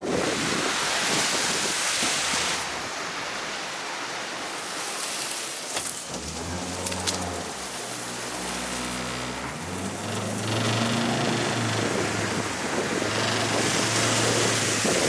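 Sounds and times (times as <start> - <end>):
wind and water rushing: 0.0 - 15.0
boat engine hum: 5.6 - 15.0.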